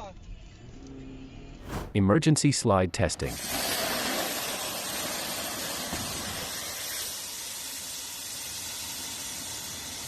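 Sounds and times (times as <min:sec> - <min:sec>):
rushing hiss of gas: 0:03.3 - 0:10.0.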